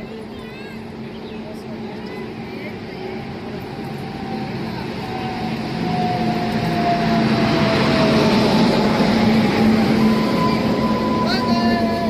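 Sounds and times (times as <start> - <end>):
wheels rumbling on rails: 0.0 - 12.0
falling whine: 2.8 - 12.0.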